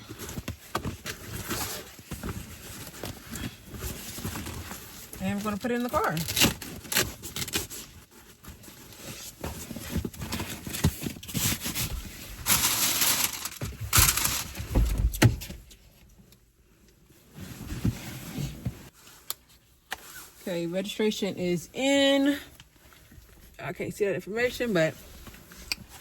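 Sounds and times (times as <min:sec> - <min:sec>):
rustling and scraping: 0:00.0 - 0:20.6.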